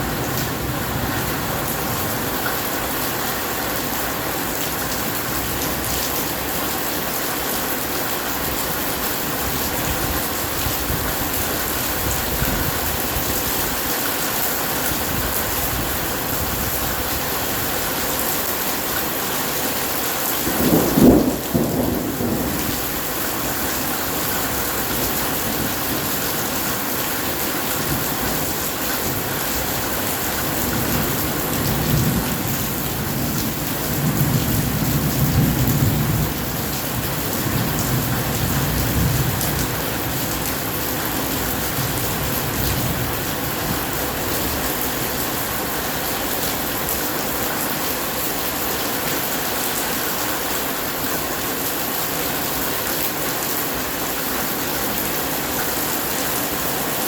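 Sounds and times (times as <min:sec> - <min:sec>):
heavy rain: 0:00.0 - 0:57.0
low thunder rumbling: 0:20.4 - 0:26.3.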